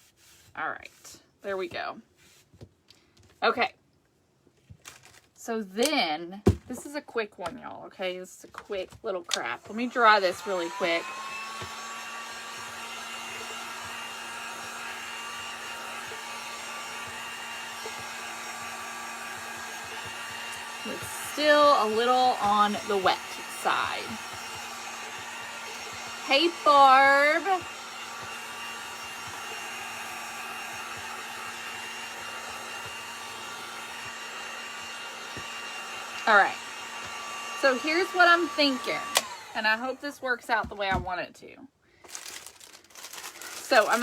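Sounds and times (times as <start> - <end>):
electric dryer blowing air: 9.2 - 41.2, 42.1 - 44.0.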